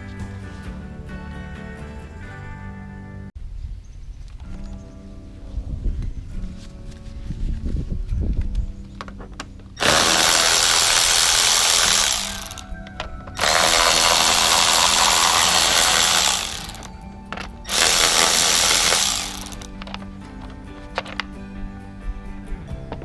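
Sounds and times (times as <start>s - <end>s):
air tool hissing bursts: 9.8s - 12.6s, 13.4s - 16.9s, 17.7s - 19.7s.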